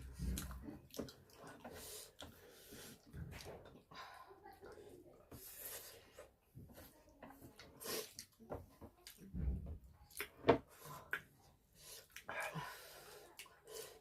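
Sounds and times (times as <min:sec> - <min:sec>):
chewing and wet mouth noises: 0:00.0 - 0:03.9, 0:07.6 - 0:09.3.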